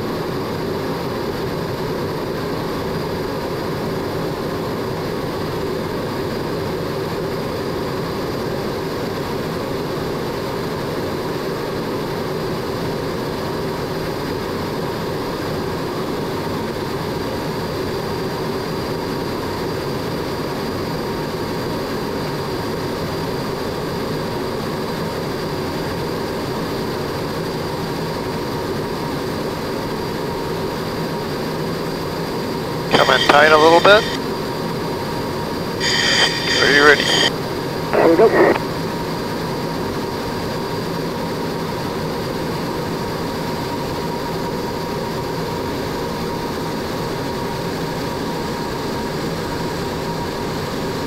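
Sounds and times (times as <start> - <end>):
jet engine rushing and whining: 32.9 - 34.2, 35.8 - 37.3.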